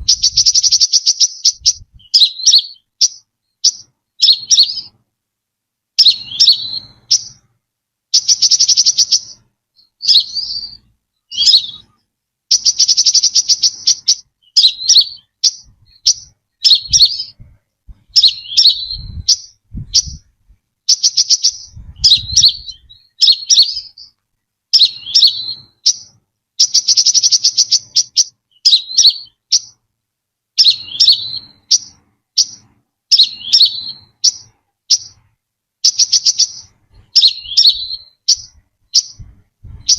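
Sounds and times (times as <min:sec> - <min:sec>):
bird chirps sweeping down: 0:00.0 - 0:04.9, 0:06.0 - 0:07.4, 0:08.2 - 0:11.9, 0:12.5 - 0:17.4, 0:18.1 - 0:20.3, 0:20.9 - 0:24.1, 0:24.8 - 0:29.8, 0:30.6 - 0:35.2, 0:35.8 - 0:39.9
bird buzzy trills: 0:00.0 - 0:05.0, 0:08.1 - 0:29.8, 0:30.6 - 0:39.9.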